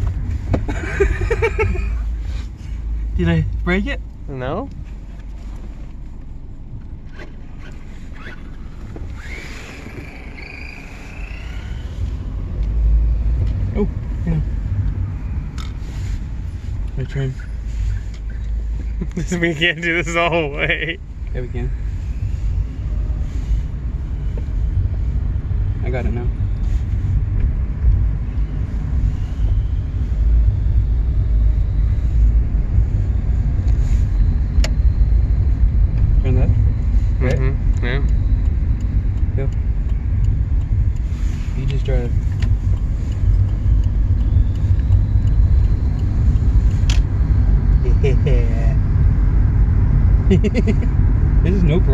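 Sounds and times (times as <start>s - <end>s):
wind and road rumble: 0.0s - 51.9s
electric motor whine: 8.8s - 12.6s.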